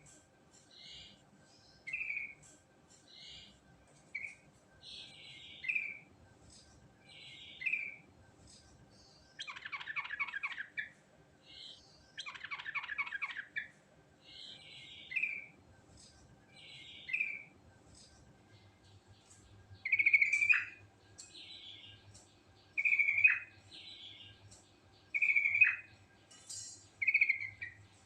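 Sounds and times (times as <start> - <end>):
bird singing bubbly phrases: 9.4 - 10.9, 12.2 - 13.7, 19.8 - 20.8, 22.8 - 24.3, 25.1 - 25.9.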